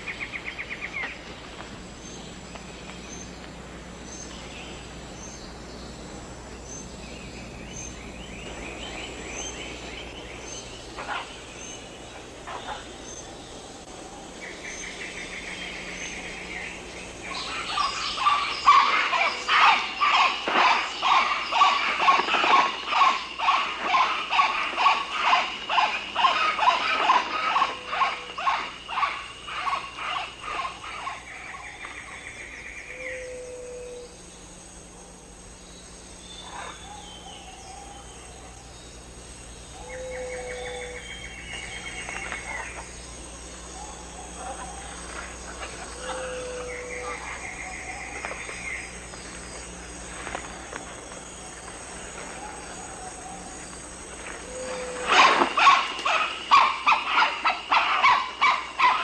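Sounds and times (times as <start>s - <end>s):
insect trills: 0.0s - 59.0s
animal calling rhythmically: 17.3s - 31.8s, 51.5s - 59.0s.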